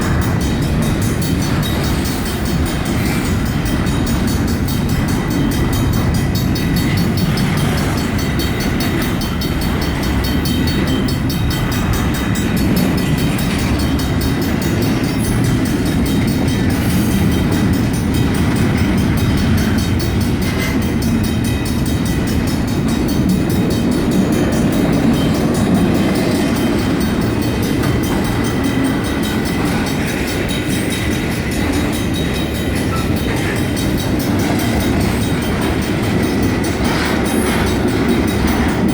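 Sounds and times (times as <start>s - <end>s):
crossing bells ringing: 0.0s - 38.9s
freight train rolling on rails: 0.0s - 38.9s.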